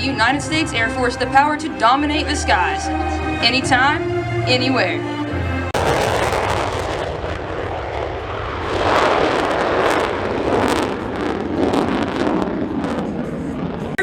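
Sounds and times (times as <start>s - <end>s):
jet flying past: 2.2s - 14.0s.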